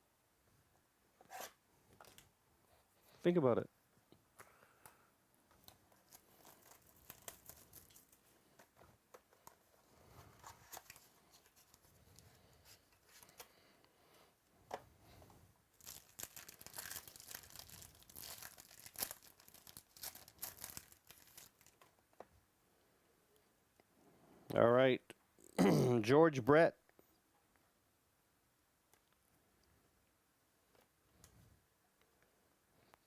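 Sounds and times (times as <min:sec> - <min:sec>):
wrapper tearing and crinkling: 0:06.0 - 0:08.2, 0:15.7 - 0:21.9.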